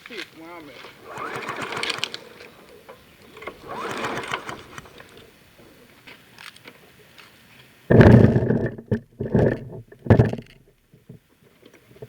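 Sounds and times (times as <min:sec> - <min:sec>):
recoil pull-starter pulled: 0:00.5 - 0:05.8, 0:07.9 - 0:11.2.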